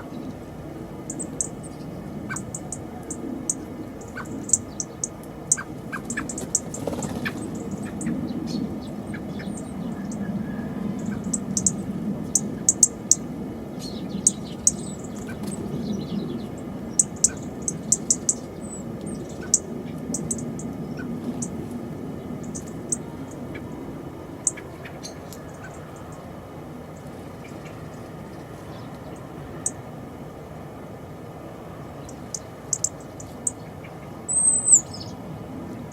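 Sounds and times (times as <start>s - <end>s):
small birds chipping: 0.0s - 29.9s, 31.8s - 35.9s
low background rumble: 0.0s - 35.9s.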